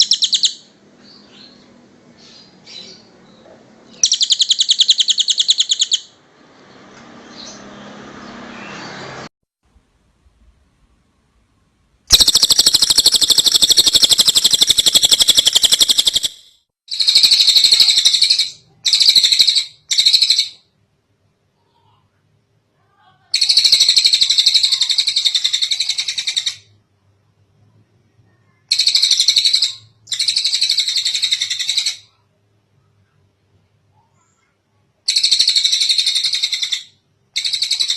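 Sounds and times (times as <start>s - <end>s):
bird singing high trills: 4.0s - 6.1s, 12.1s - 20.6s.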